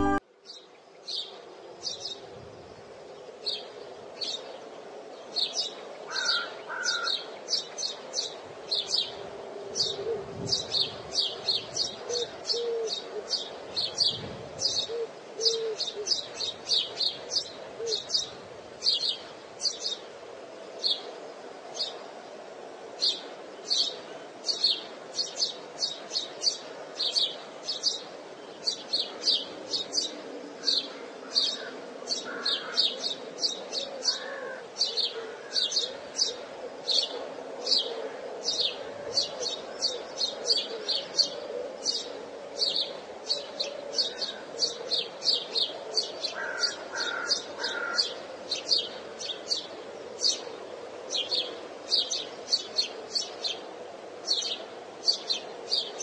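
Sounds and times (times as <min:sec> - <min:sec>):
small birds chirping: 0:09.8 - 0:21.1, 0:22.9 - 0:56.0.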